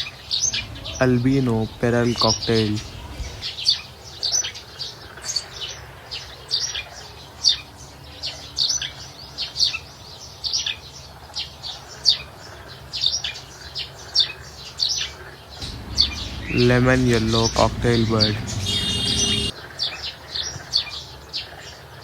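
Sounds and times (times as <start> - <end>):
birds chirping: 0.0 - 3.7, 15.6 - 19.5.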